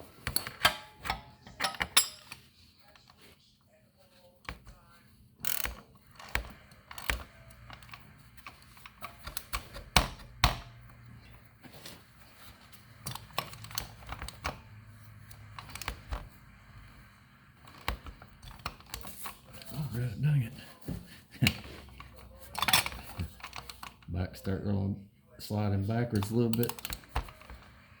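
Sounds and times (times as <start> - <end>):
hand tools and metal parts clicking: 0.2 - 2.5, 5.4 - 16.3, 17.6 - 19.9, 21.4 - 24.1, 26.1 - 27.8.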